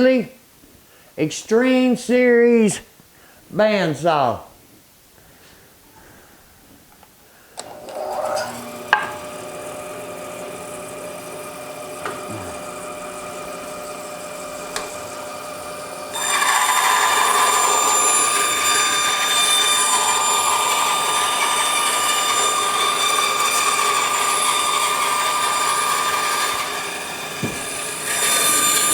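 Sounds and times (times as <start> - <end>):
bandsaw blade cutting wood: 7.6 - 28.9
bandsaw motor whine: 7.6 - 28.9.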